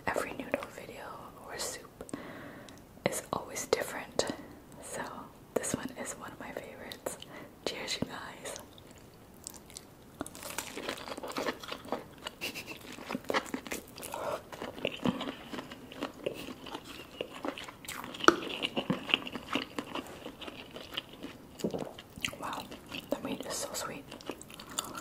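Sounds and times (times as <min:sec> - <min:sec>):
biting and chewing: 0:08.6 - 0:25.0
wet mouth clicks and smacks: 0:16.3 - 0:19.0.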